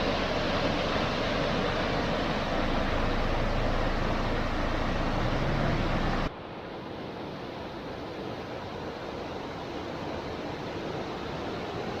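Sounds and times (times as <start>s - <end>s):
water rushing: 0.0s - 7.5s.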